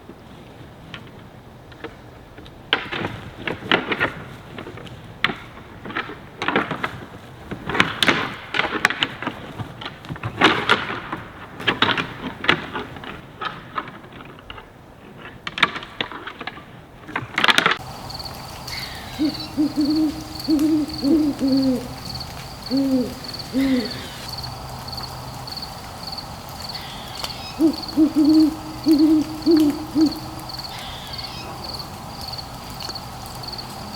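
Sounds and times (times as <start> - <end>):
owl hooting: 17.8 - 33.4
high pulsing insect chirp: 17.8 - 33.9.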